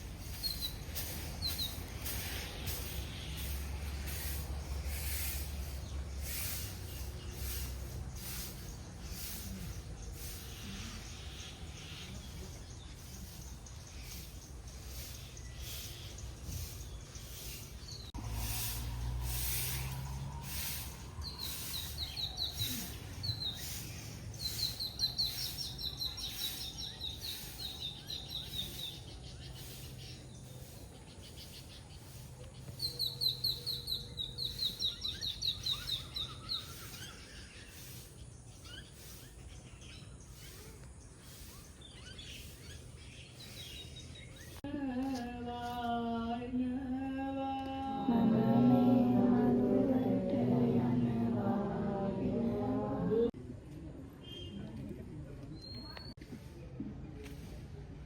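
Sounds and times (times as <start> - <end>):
outdoor background noise: 0.0 - 58.0
person chanting: 44.6 - 53.4.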